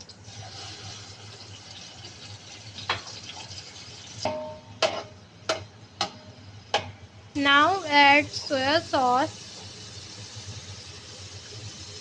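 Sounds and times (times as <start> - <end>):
liquid poured into hot pan hissing: 0.2 - 4.2, 8.2 - 12.0
metal utensil knocking on pan: 4.3 - 7.0.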